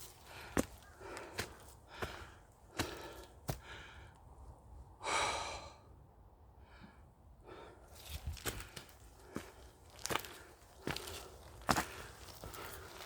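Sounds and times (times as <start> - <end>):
footsteps on trail: 0.0 - 4.0, 7.9 - 13.0
person breathing hard: 0.2 - 4.3, 5.0 - 6.0, 6.6 - 8.0.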